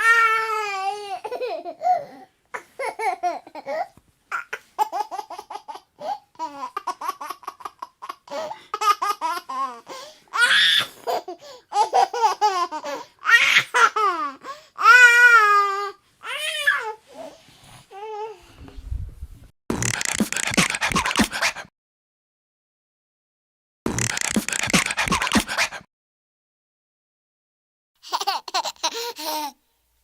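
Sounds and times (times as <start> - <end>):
baby laughing and babbling: 0.3 - 9.9, 10.8 - 17.0, 28.0 - 29.6.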